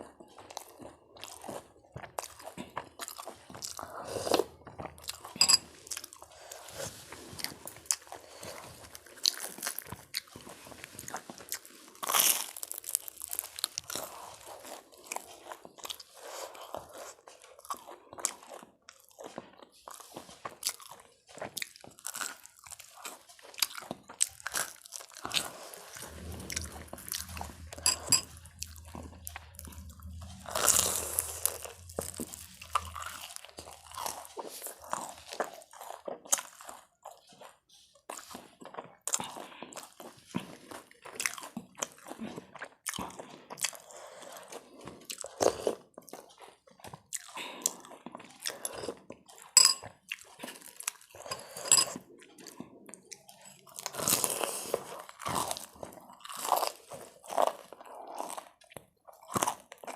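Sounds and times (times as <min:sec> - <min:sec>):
person chewing crunchy food: 0:00.0 - 0:59.9
faint low hum: 0:25.4 - 0:35.3.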